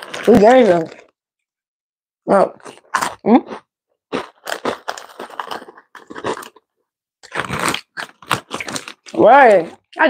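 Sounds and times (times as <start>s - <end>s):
crunching: 0.0s - 1.2s, 4.1s - 9.9s
snacks being chewed: 2.6s - 10.0s.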